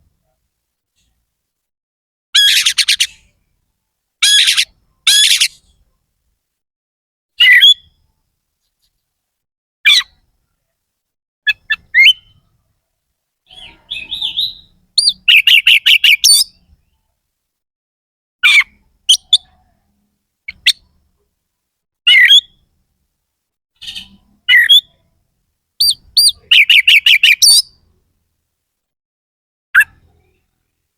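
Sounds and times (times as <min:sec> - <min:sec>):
magpie-robin singing: 0:02.4 - 0:03.3, 0:04.2 - 0:05.6, 0:07.4 - 0:07.8, 0:11.5 - 0:12.4, 0:13.5 - 0:16.7, 0:18.4 - 0:19.5, 0:20.5 - 0:20.9, 0:22.1 - 0:22.6, 0:23.8 - 0:25.0, 0:25.8 - 0:27.8.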